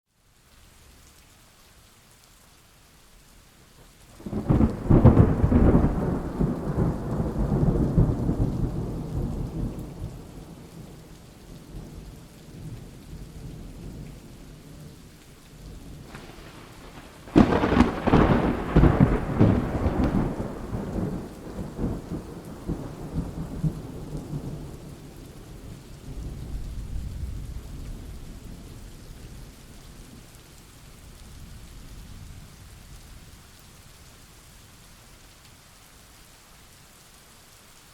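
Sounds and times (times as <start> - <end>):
steady rain: 0.0 - 37.9
thunder crack and rumbles: 4.2 - 11.0, 15.6 - 29.1.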